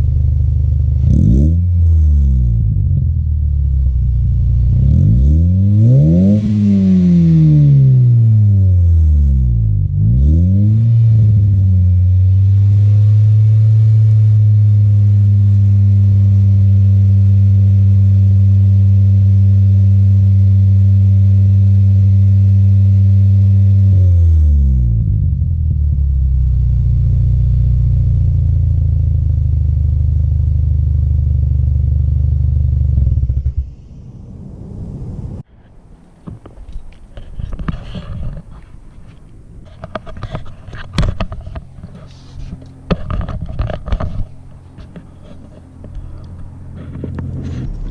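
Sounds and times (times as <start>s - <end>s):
car engine revving: 0.0s - 21.5s, 39.6s - 47.9s.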